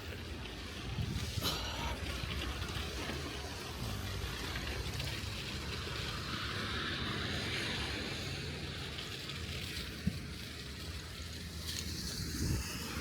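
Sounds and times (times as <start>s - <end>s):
tyres hissing on snow: 0.0s - 13.0s
wind noise on microphone: 0.8s - 1.5s, 11.6s - 13.0s.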